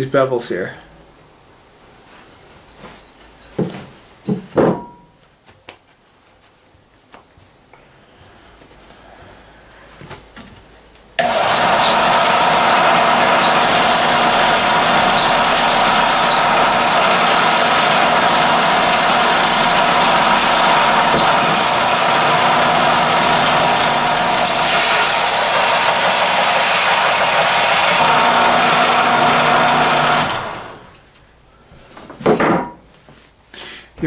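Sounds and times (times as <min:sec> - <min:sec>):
belt sander grinding metal: 0:11.2 - 0:31.0.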